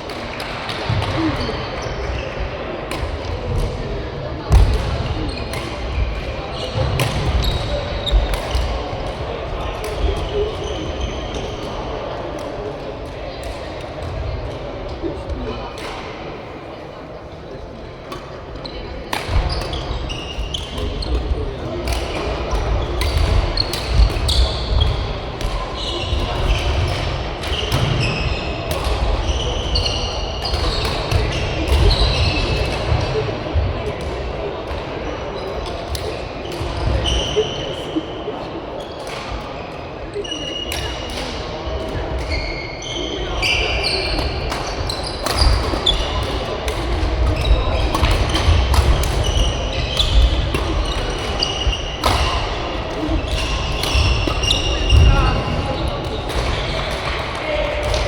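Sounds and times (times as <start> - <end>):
shoes squeaking on court floor: 18.6 - 33.2, 42.1 - 58.0
racket hitting shuttlecock: 44.1 - 54.7.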